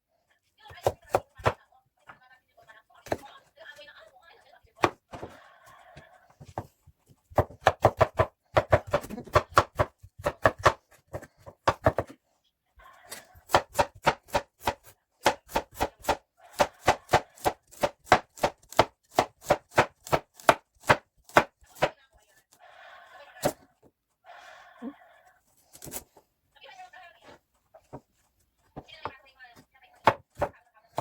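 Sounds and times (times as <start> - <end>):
knife chopping on cutting board: 0.7 - 1.6, 4.8 - 5.4, 7.3 - 12.2, 13.2 - 22.0, 30.0 - 31.0.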